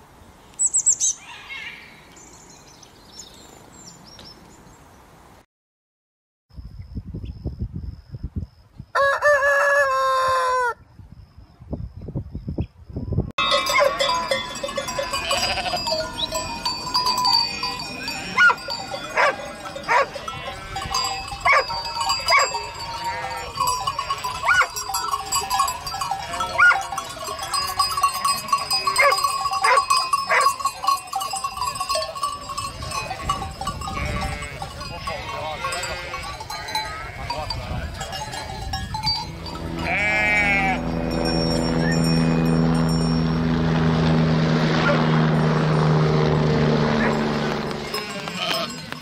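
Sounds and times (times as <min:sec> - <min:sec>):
flock of sheep bleating: 0:14.8 - 0:16.3, 0:17.3 - 0:21.3, 0:22.3 - 0:24.6, 0:25.6 - 0:27.4, 0:33.8 - 0:37.6, 0:39.8 - 0:41.1, 0:47.8 - 0:49.0.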